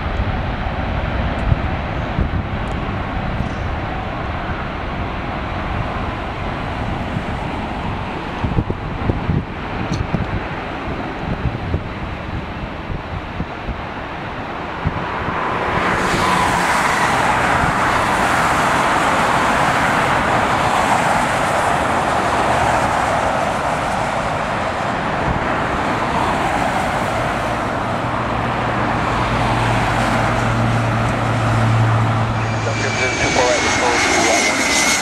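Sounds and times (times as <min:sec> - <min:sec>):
jet airliner passing: 0:00.0 - 0:35.0.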